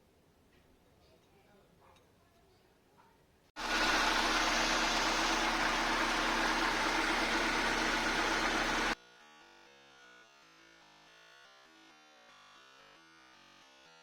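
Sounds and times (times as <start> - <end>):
car engine idling: 3.6 - 9.0.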